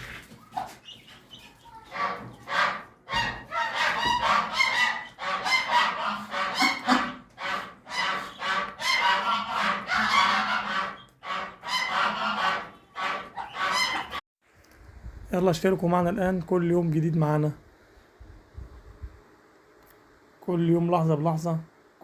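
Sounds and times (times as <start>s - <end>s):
birds calling: 0.0s - 14.2s.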